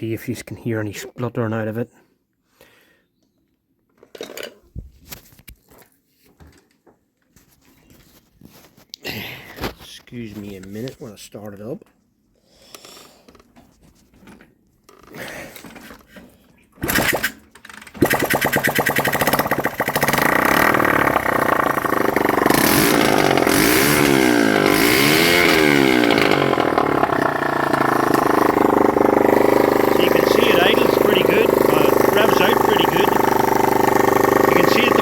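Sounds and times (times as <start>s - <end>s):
motorcycle engine starting and revving: 16.8s - 35.0s.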